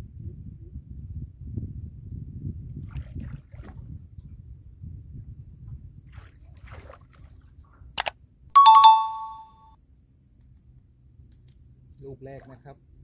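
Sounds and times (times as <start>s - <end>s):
low rumble of water and boat: 0.0s - 13.0s
two-note electronic chime: 8.6s - 9.6s.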